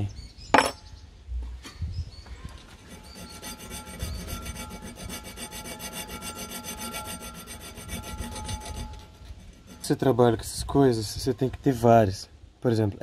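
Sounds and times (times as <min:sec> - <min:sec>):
hand file rasping on steel: 0:02.8 - 0:10.4.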